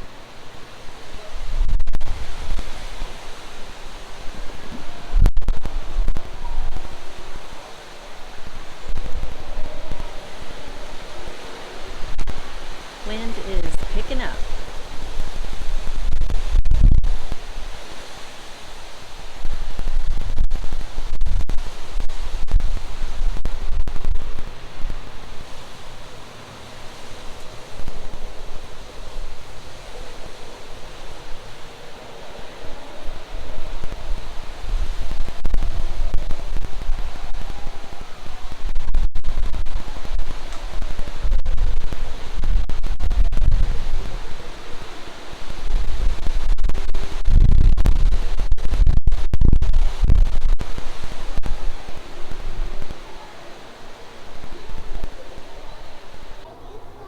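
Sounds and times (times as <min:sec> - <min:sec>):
wind gusting on microphone: 0:00.0 - 0:57.0.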